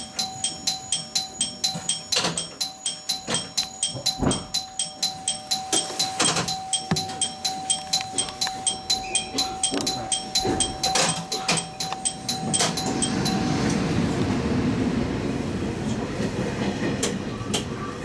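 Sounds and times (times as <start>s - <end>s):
rapid repeating ringing tone: 0.0s - 13.9s
train running rumble: 8.2s - 18.0s.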